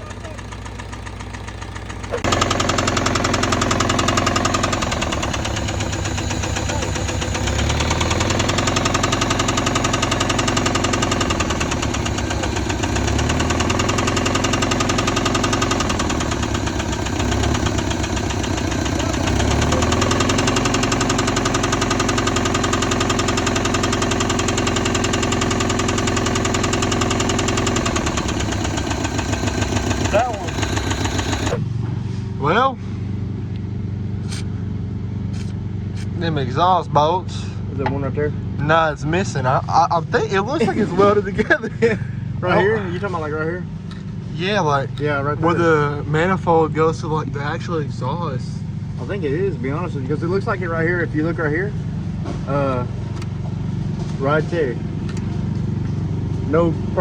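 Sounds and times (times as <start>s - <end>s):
car engine with rod knock: 0.0s - 32.0s, 37.8s - 38.2s, 52.1s - 54.3s.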